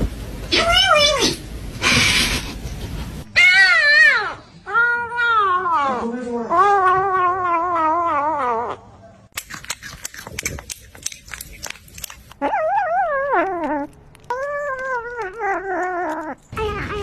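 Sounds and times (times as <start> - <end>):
pet animal howling: 12.4 - 17.0.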